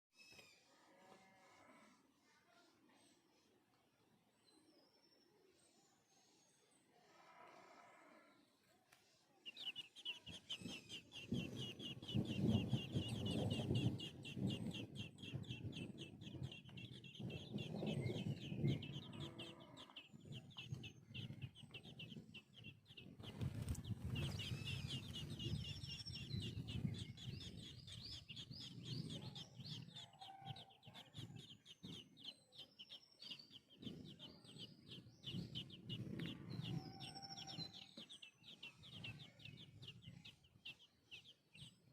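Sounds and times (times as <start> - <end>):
birds chirping: 7.4 - 41.9
louder lower bird calls: 9.5 - 23.1, 24.2 - 41.3.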